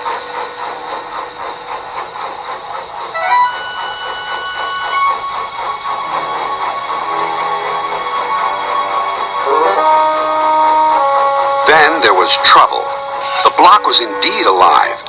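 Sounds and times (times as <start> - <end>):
steam locomotive puffing: 0.0 - 15.0
locomotive whistle: 3.0 - 15.0.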